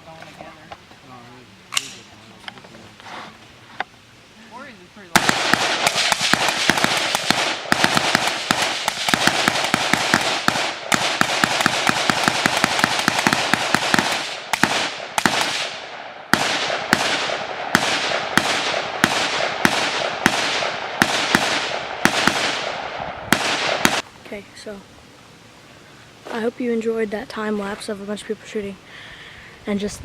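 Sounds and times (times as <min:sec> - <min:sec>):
rifles firing: 0:05.2 - 0:24.0.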